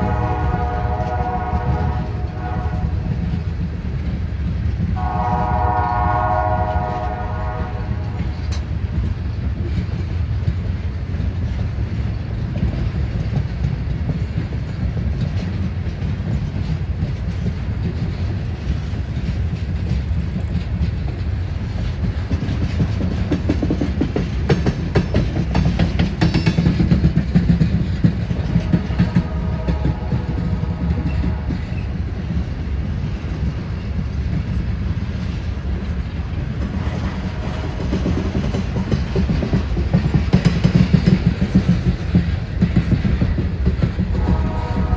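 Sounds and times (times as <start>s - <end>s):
locomotive air horn chord: 0.0s - 3.2s, 5.0s - 8.5s, 28.5s - 32.0s, 44.1s - 44.9s
freight train rumbling on rails: 0.0s - 44.9s.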